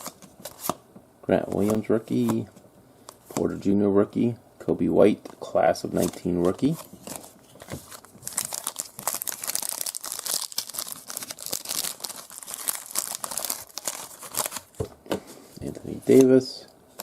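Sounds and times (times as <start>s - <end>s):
foil wrapper crinkling and tearing: 8.2s - 14.7s.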